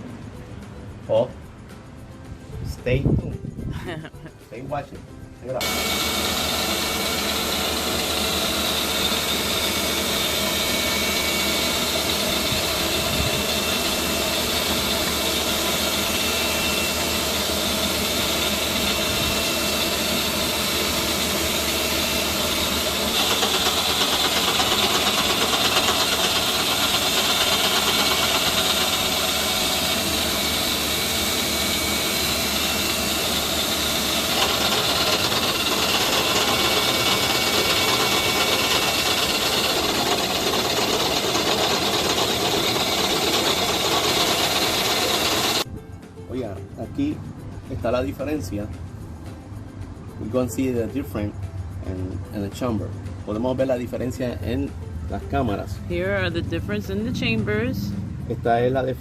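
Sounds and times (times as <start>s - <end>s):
cutting machine hiss: 5.6s - 45.6s.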